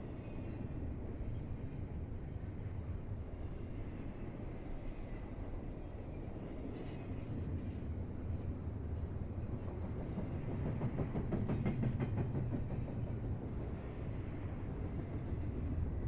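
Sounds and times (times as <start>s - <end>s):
train rumbling on rails: 0.0s - 16.0s
train wheel clicks: 10.0s - 13.0s.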